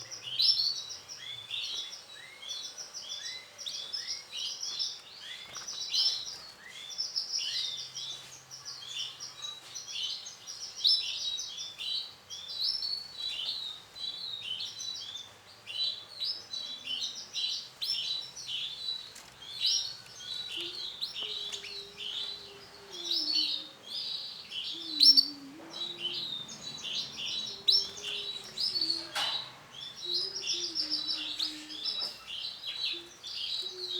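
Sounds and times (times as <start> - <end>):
canary singing trills: 19.5 - 33.9.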